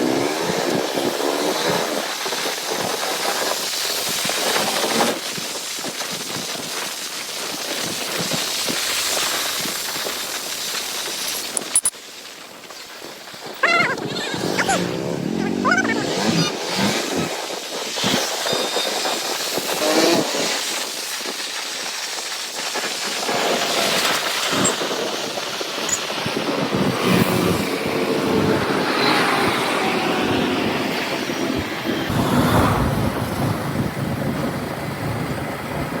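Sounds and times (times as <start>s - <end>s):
wind noise on microphone: 13.3s - 36.0s.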